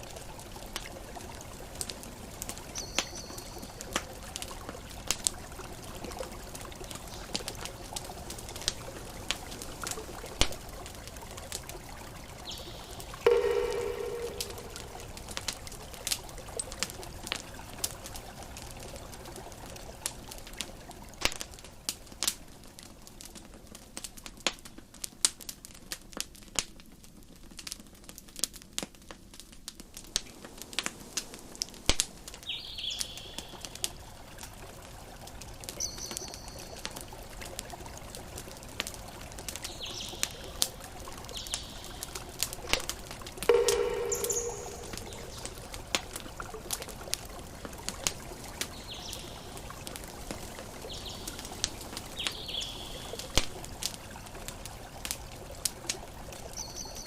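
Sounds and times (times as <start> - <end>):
campfire crackling and popping: 0.0 - 56.6
high chirps: 13.2 - 15.2, 43.5 - 45.7.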